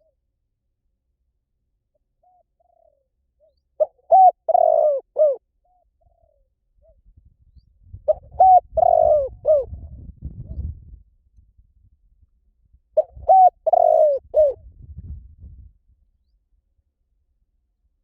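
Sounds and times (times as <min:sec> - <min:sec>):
dove cooing: 0:02.2 - 0:07.0, 0:08.1 - 0:10.0, 0:13.0 - 0:14.6.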